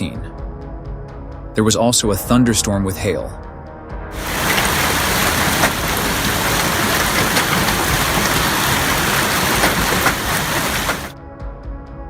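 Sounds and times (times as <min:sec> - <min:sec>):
hail and heavy rain: 0:04.2 - 0:11.2
hail hits: 0:04.2 - 0:11.2.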